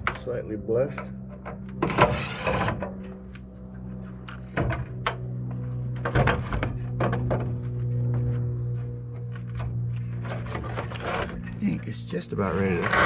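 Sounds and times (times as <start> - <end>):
steady low hum: 0.0 - 13.0
harsh metal scrape: 1.8 - 3.1, 10.0 - 13.0.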